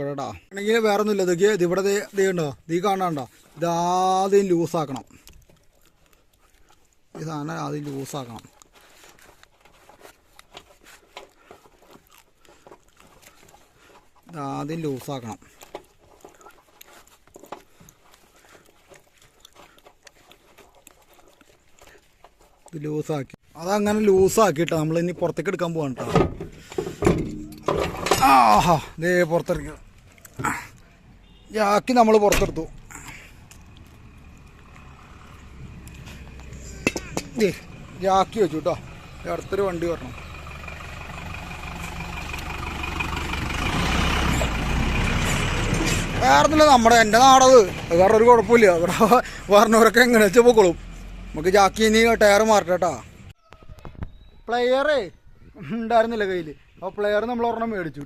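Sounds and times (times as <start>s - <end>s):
passing vehicle engine hum: 32.7s - 53.3s.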